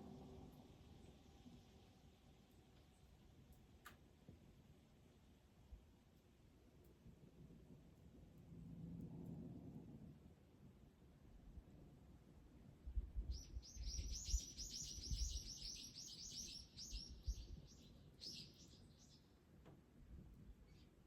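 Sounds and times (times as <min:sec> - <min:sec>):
songbird calling: 0:13.4 - 0:19.3.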